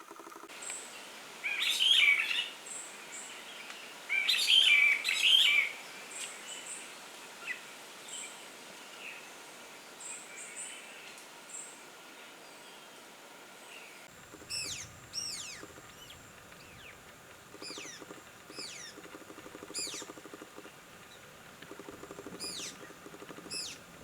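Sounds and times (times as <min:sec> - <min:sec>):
songbird warbling: 0:14.2 - 0:24.0
faint high bird chirps: 0:14.4 - 0:20.4, 0:22.3 - 0:23.8.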